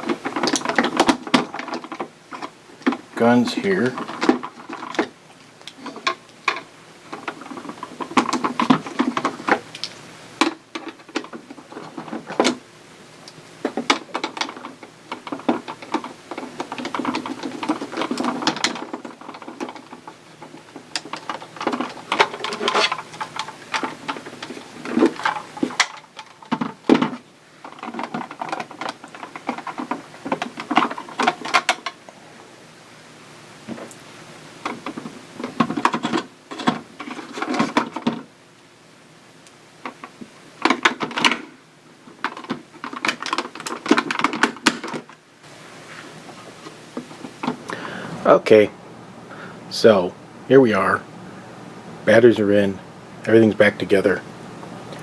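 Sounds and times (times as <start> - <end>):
plastic toy parts clicking and rattling: 0.0 - 12.6, 13.2 - 32.0, 34.6 - 38.3, 39.8 - 45.2.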